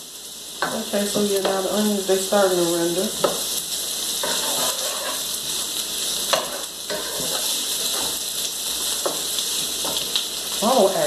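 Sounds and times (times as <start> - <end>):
vegetables sizzling in a skillet: 0.0 - 11.0
wooden spoon scraping a pan: 4.2 - 10.2.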